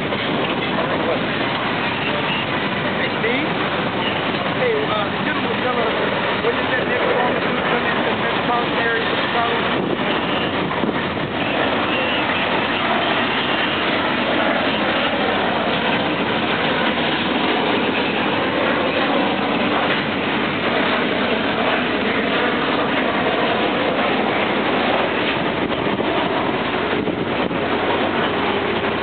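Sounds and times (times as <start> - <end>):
vehicle noise: 0.0 - 29.0.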